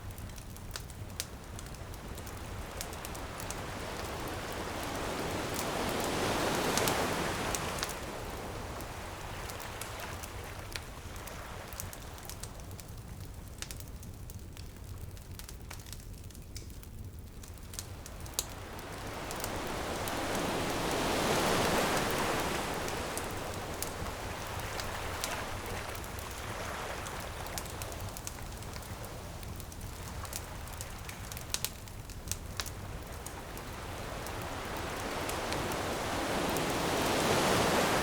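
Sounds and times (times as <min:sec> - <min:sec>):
wood fire crackling: 0:00.0 - 0:38.0
surf rumbling: 0:01.3 - 0:12.2, 0:17.8 - 0:38.0
wave rushing in: 0:18.8 - 0:25.6.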